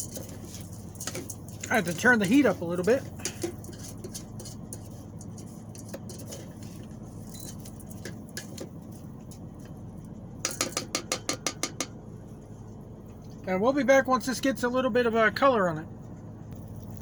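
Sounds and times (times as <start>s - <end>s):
utensil clattering in metal pot: 0.0s - 9.7s, 10.4s - 12.0s
steady low hum: 0.0s - 17.0s.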